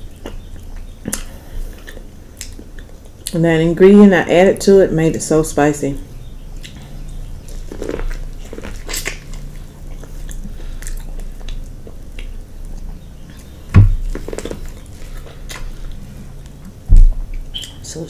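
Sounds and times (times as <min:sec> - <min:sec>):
person chewing food: 0:00.0 - 0:03.4, 0:06.6 - 0:17.8
loud dull thump: 0:13.7 - 0:14.2.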